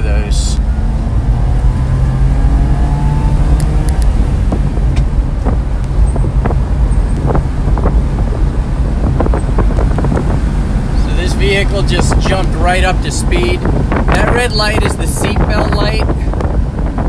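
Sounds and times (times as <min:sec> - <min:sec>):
small engine drone: 0:00.6 - 0:11.2.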